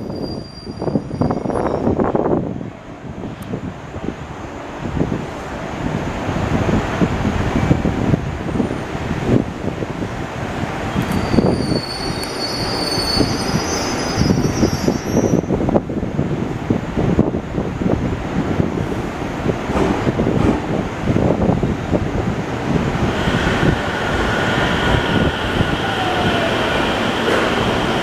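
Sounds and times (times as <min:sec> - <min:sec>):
high wheel squeal: 0:00.0 - 0:01.9, 0:10.9 - 0:15.6
train wheels rumbling on rails: 0:00.0 - 0:28.0.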